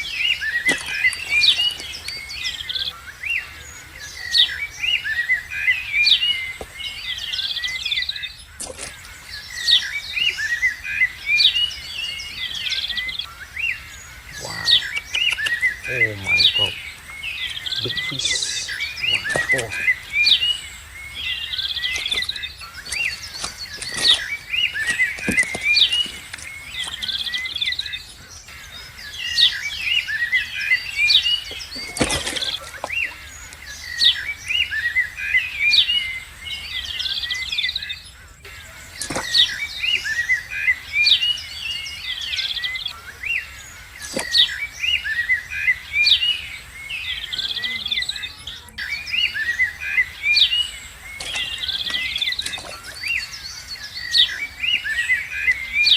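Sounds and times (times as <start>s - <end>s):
birds singing: 0.0s - 55.9s.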